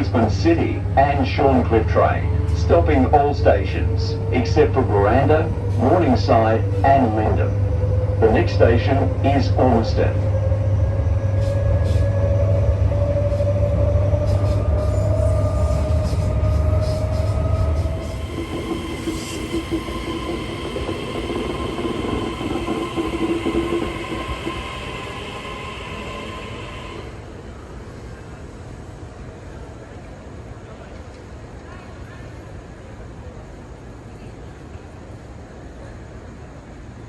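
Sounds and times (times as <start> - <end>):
electric train motor whine: 0.0 - 27.5
low hum of train: 0.0 - 37.0.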